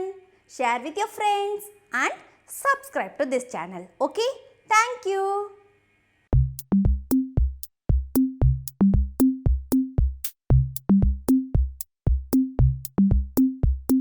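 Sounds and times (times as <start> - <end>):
drum machine beat: 6.3 - 14.0
short low bass notes: 6.4 - 14.0.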